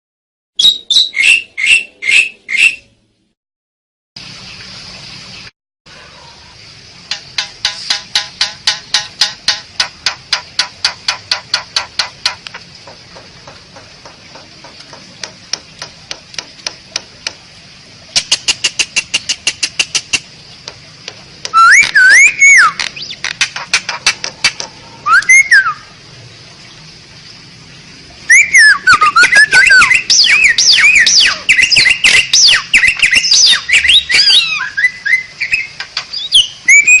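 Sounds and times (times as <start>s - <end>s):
starling singing: 0.6s - 2.9s, 21.4s - 24.2s, 28.3s - 37.0s
bird dry clicks: 18.2s - 22.0s, 22.8s - 24.7s
bird swooping whistles: 21.6s - 23.2s, 28.3s - 37.0s.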